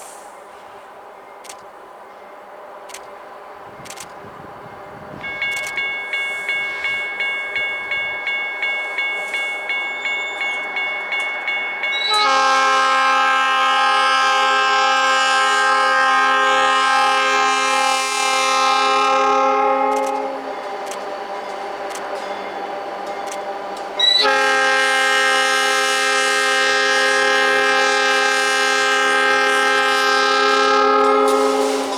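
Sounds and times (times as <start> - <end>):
diesel locomotive running: 0.0 - 31.9
bell ringing: 5.2 - 12.2
locomotive air horn chord: 12.0 - 20.5, 24.0 - 31.9.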